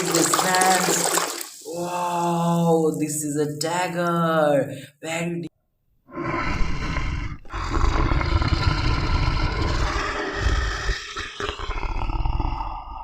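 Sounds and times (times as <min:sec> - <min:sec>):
tiger roaring: 0:06.1 - 0:13.0.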